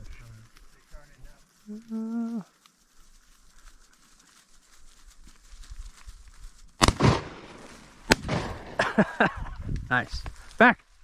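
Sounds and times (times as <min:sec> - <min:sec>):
shotgun blasts echoing: 0:06.8 - 0:08.9.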